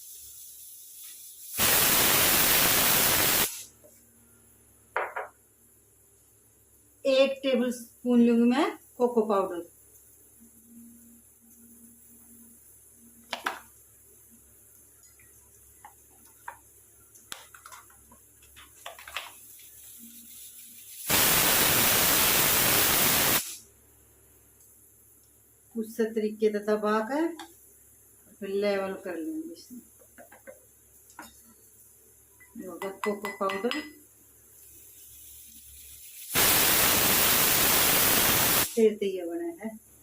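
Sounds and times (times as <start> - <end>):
loud burst of hissing: 0.0 - 3.8, 19.8 - 23.7, 34.6 - 38.8.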